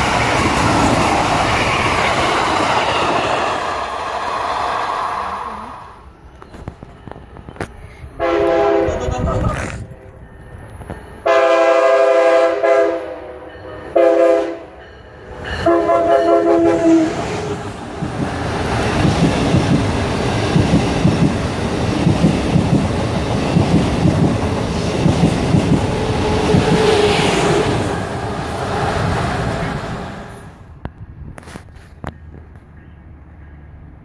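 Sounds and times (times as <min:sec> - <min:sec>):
passing train rush: 0:00.0 - 0:34.0
train horn blasts: 0:08.2 - 0:09.0, 0:11.2 - 0:17.7.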